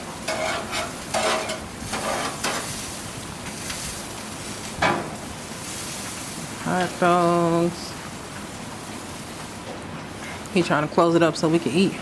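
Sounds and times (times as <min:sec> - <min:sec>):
grill scrapes: 0:00.0 - 0:06.6
meat sizzling on a grill: 0:00.0 - 0:12.0.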